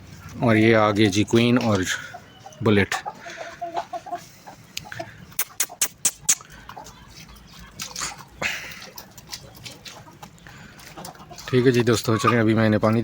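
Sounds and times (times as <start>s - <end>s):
chickens pecking grain: 0.0s - 13.0s
chickens clucking softly: 0.1s - 13.0s.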